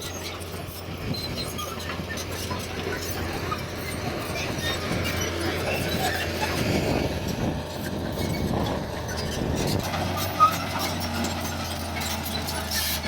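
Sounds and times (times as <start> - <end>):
heavy diesel machinery running: 0.0 - 13.0.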